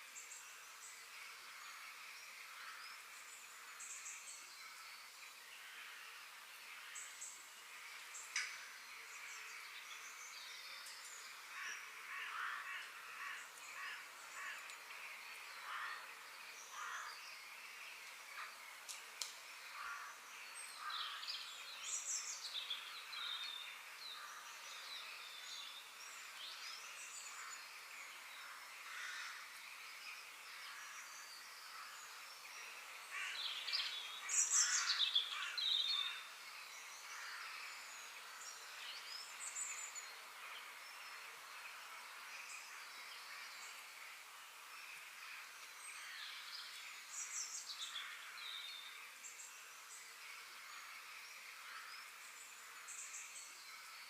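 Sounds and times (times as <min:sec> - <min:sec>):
faint steady hiss: 0:00.0 - 0:54.0
birds chirping: 0:00.1 - 0:54.0.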